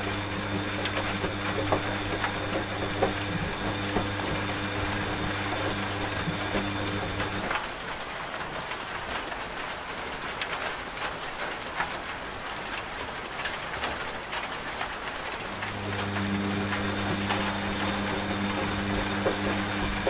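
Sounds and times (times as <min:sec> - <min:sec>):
washing machine motor hum: 0:00.0 - 0:07.6, 0:15.3 - 0:20.0
steady rain: 0:00.0 - 0:20.0.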